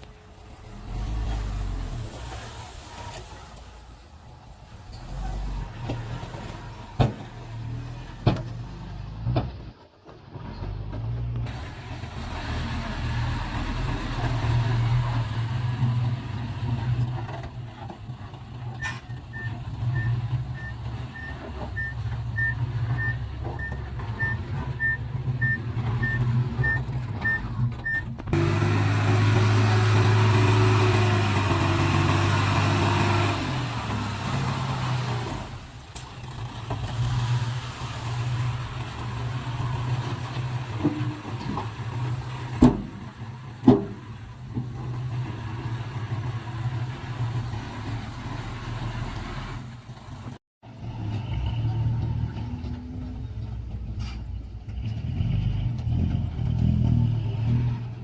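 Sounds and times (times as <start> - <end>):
heavy diesel engines rumbling: 0.0 - 58.0
reversing alarm beeps: 18.8 - 28.0.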